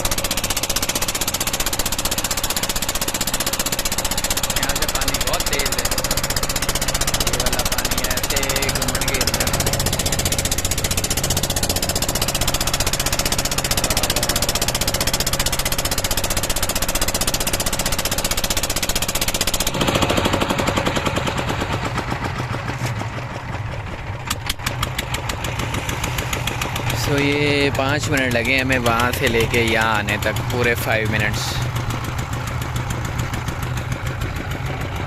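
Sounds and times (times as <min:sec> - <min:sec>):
boat engine knocking: 0:00.0 - 0:35.0.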